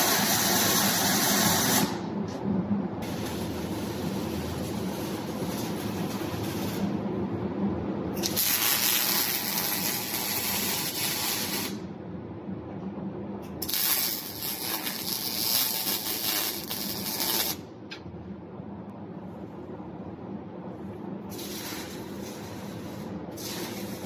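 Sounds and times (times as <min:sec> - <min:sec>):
welder arc crackling hiss: 0:00.0 - 0:02.0, 0:03.0 - 0:07.0, 0:08.2 - 0:11.8, 0:13.6 - 0:17.6, 0:21.3 - 0:24.0.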